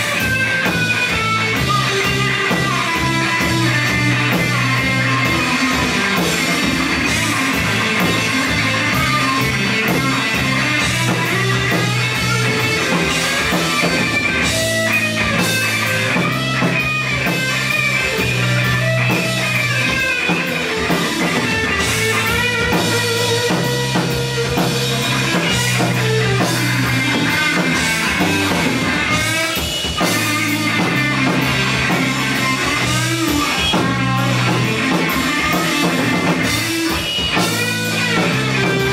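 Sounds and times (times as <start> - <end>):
drum kit: 0.0 - 38.9
electric guitar: 0.0 - 38.9
rock band playing live: 0.0 - 38.9.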